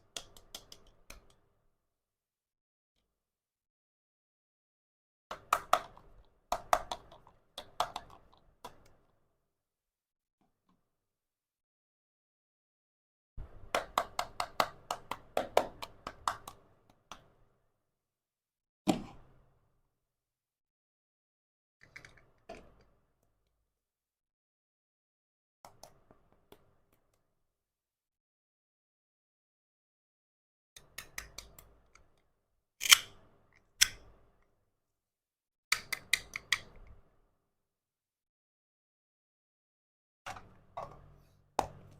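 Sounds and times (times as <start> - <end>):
toy kitchen pieces clicking: 32.8 - 33.1.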